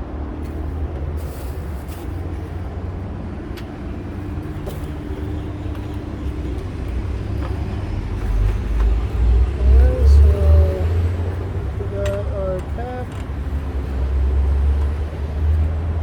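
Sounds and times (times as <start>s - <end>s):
vehicle engine idling: 0.1s - 16.0s.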